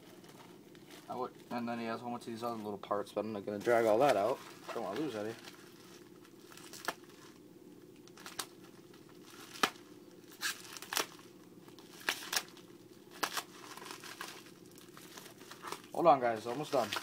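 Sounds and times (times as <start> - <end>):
plastic packaging crinkling: 3.6 - 17.0.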